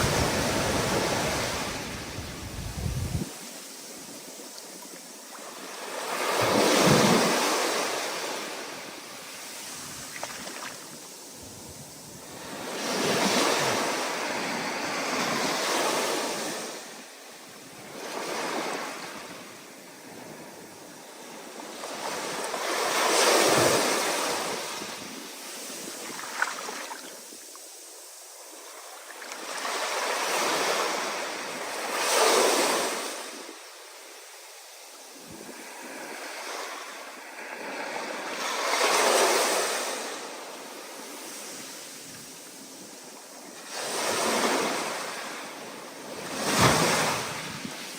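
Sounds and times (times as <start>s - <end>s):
ocean waves breaking: 0.0s - 3.4s
stormy wind: 0.0s - 3.4s.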